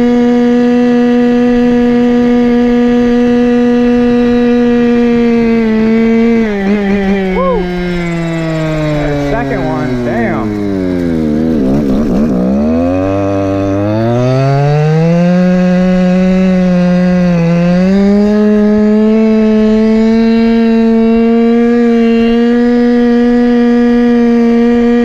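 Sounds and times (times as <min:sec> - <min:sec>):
scooter two-stroke engine revving: 0:00.0 - 0:25.0.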